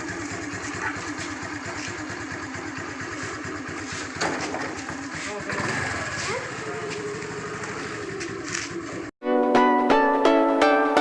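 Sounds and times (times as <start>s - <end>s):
motorcycle engine idling: 0.0s - 9.1s.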